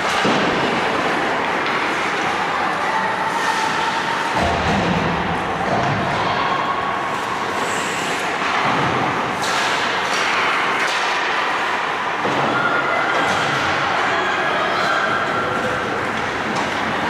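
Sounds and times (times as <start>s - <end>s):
hockey sticks knocking puck: 8.2s - 13.8s, 15.3s - 17.0s.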